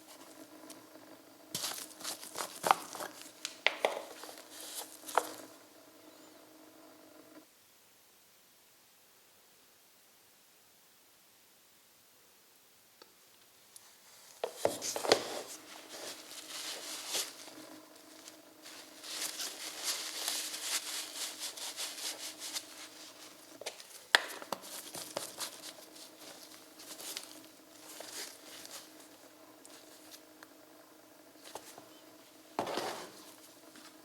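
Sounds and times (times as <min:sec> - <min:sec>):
motor hum: 0:00.0 - 0:07.4, 0:14.4 - 0:34.0.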